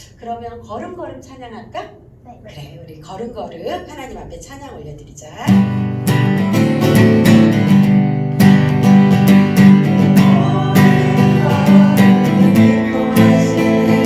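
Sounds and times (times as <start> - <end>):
acoustic guitar strumming chords: 5.6 - 14.0.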